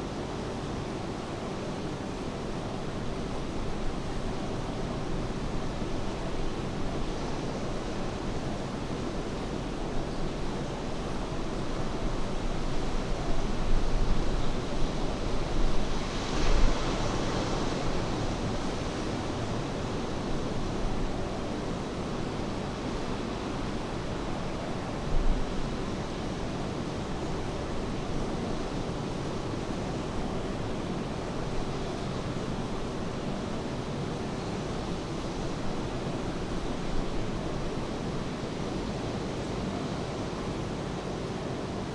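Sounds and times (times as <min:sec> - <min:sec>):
ocean surf washing ashore: 0:14.3 - 0:21.8.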